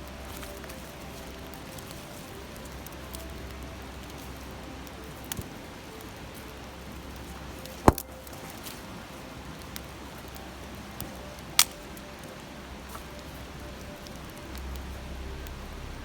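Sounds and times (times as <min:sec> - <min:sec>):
campfire crackling: 0:00.0 - 0:16.0
river murmuring: 0:00.0 - 0:16.0
loud sharp pop from burning wood: 0:07.7 - 0:08.7, 0:11.6 - 0:11.8.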